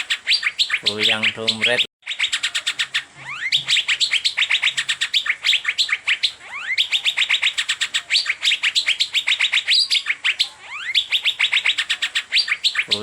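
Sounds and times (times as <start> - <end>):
bird singing rapid chirps: 0.0 - 13.0.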